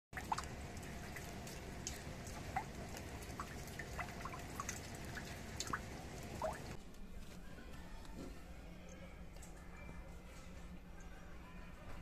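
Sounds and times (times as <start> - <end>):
steady falling rain: 0.2 - 6.8
water drops plinking: 0.2 - 6.8.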